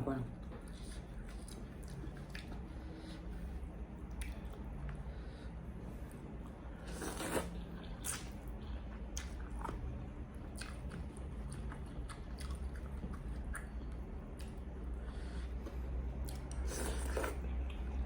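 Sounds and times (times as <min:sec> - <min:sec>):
chewing crispy chicken: 0:00.4 - 0:03.3, 0:06.5 - 0:15.0.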